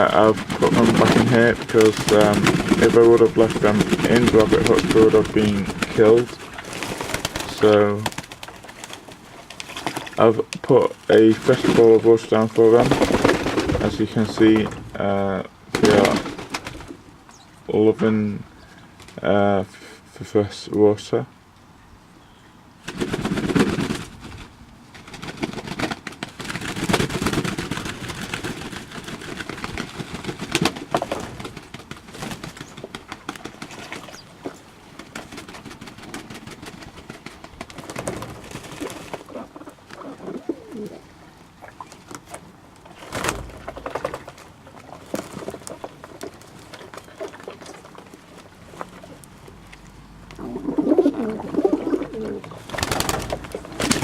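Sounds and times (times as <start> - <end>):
pigeons cooing: 0.0 - 9.3, 35.5 - 42.0, 50.3 - 54.0
rustles: 0.0 - 20.8, 21.4 - 54.0.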